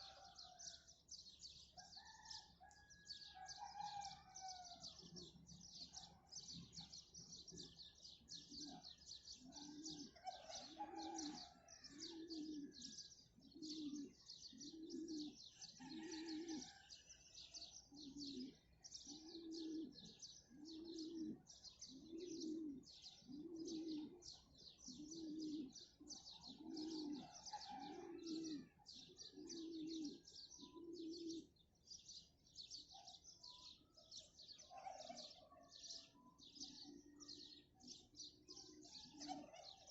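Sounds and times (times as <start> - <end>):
dove cooing: 0.0 - 0.8, 3.6 - 31.6, 34.5 - 39.9
small birds chirping: 0.0 - 39.9.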